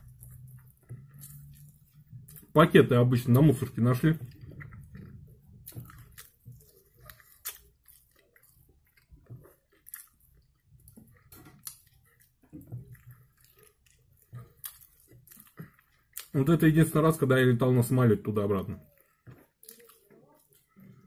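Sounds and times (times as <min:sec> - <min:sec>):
person chewing wetly: 0:00.0 - 0:21.0.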